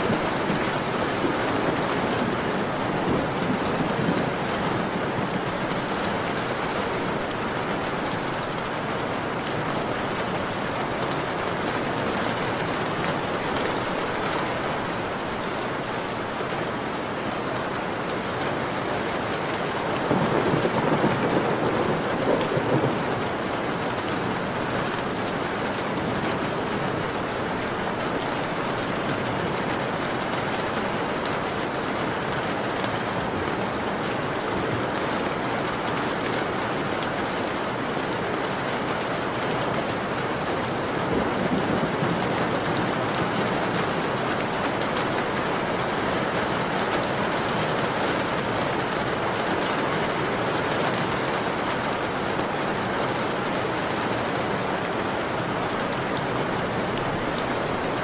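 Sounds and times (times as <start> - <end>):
steady rain hissing: 0.0 - 58.0.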